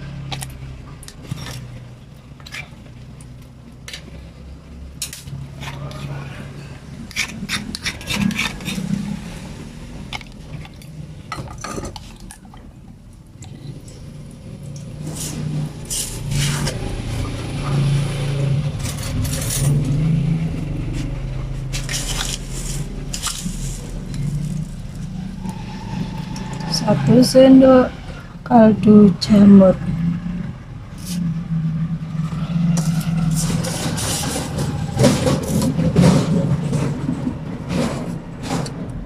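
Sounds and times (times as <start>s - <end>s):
steady low hum: 0.0s - 39.0s
kitchen utensils clinking and scraping: 7.1s - 9.2s, 10.1s - 12.5s, 15.0s - 20.0s, 21.0s - 27.9s, 32.8s - 37.0s.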